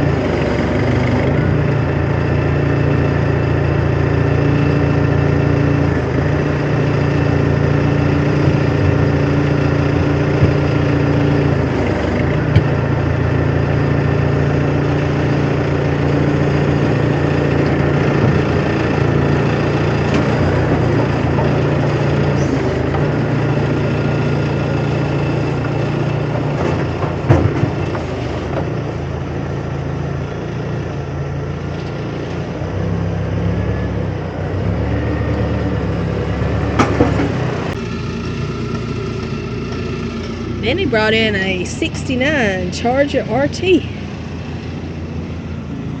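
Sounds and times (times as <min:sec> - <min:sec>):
large vehicle engine running: 0:00.0 - 0:46.0.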